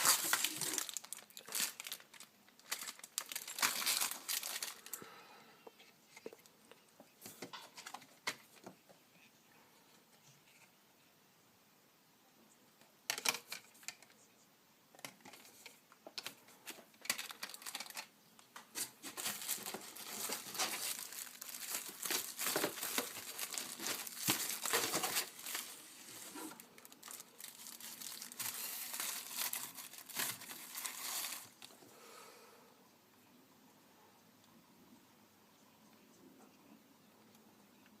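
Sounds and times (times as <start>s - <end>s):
packaging crinkling and tearing: 0.0s - 5.0s, 15.3s - 31.8s.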